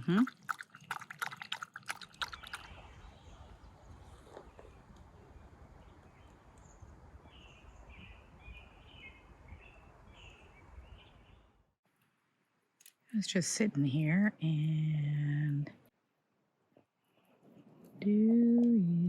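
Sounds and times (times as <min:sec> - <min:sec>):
dog lapping water: 0:00.0 - 0:02.9
bird chirping: 0:02.0 - 0:11.5.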